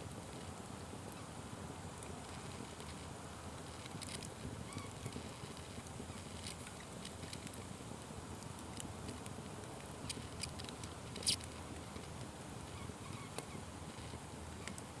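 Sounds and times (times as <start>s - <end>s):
wood fire crackling: 1.9s - 12.8s.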